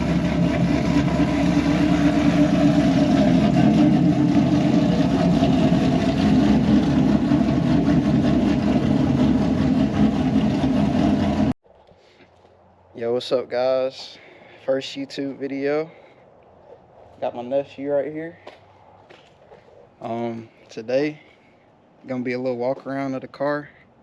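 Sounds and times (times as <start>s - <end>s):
car engine idling: 0.0s - 11.6s.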